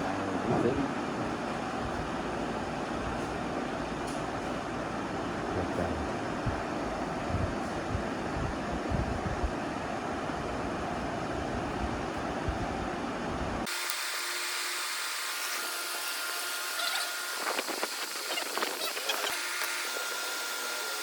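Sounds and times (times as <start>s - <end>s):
power tool whine: 13.7s - 21.0s.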